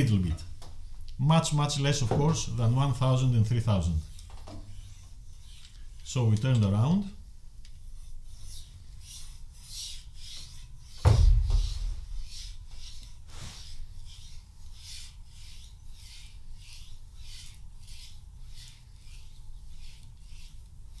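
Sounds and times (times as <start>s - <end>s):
dull thump: 11.0s - 12.8s
knife scratching on whetstone: 13.4s - 20.7s.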